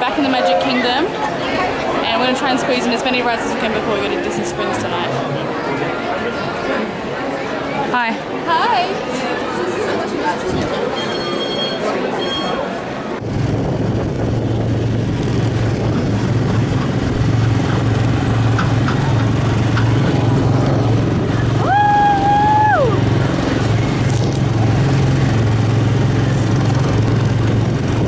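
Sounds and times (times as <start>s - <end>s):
high-pitched tone: 0.0s - 1.3s.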